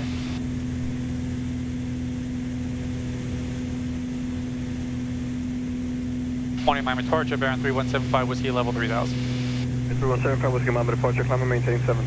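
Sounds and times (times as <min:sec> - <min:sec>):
propeller plane droning in flight: 0:00.0 - 0:12.0.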